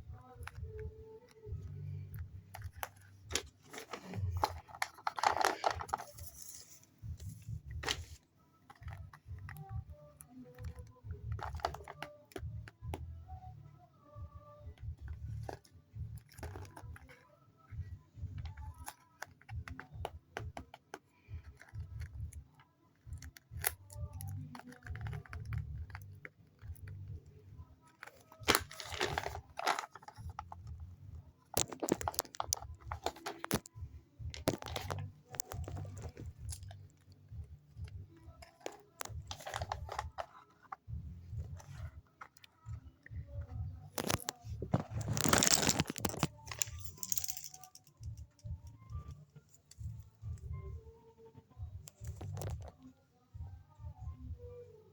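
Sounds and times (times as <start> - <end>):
paper crinkling and tearing: 44.0 - 47.0.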